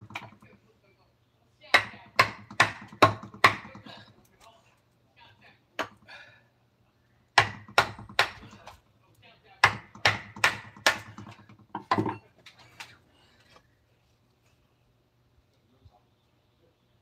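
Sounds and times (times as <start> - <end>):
mallet striking chisel into wood: 1.8 - 3.9, 7.4 - 8.5, 9.6 - 12.2.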